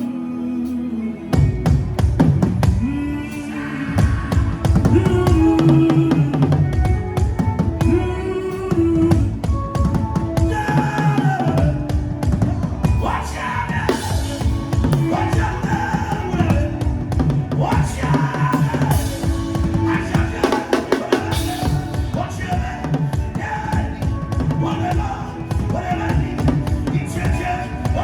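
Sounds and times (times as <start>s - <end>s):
deep bass: 1.4s - 3.3s, 4.0s - 10.7s, 11.5s - 28.0s
fast dense drumming: 4.0s - 8.0s, 13.8s - 28.0s.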